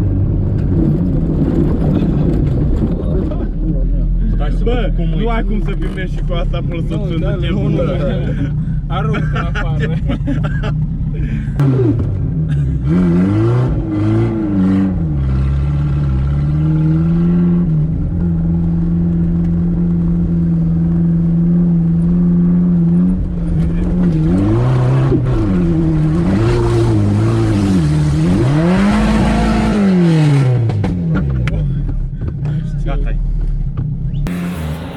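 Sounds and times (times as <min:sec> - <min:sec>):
car engine revving: 0:00.0 - 0:34.9.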